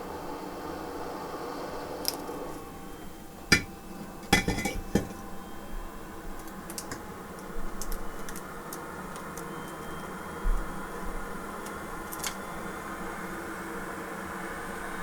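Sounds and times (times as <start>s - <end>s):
small tools clinking on a bench: 3.5s - 5.3s, 6.4s - 7.1s.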